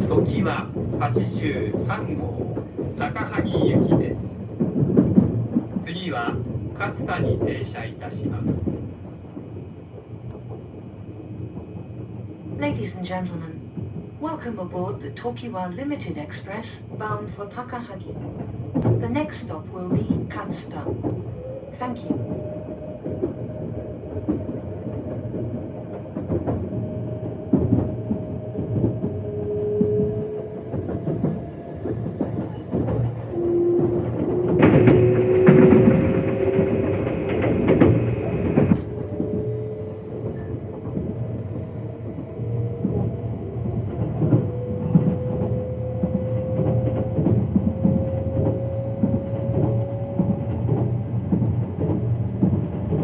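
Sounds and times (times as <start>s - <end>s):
train interior rumble: 0.0s - 53.0s.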